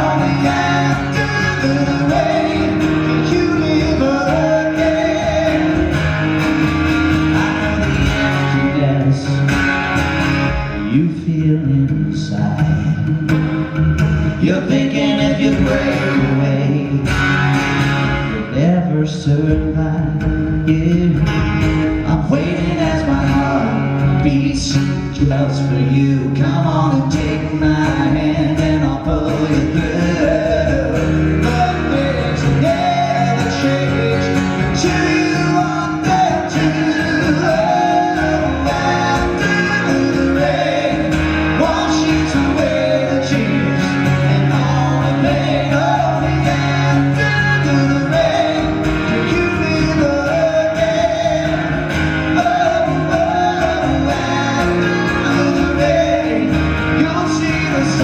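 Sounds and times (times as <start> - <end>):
man singing: 0.0 - 9.5, 10.6 - 13.3, 14.2 - 17.4, 18.3 - 58.0
rock band playing power ballad: 0.0 - 58.0.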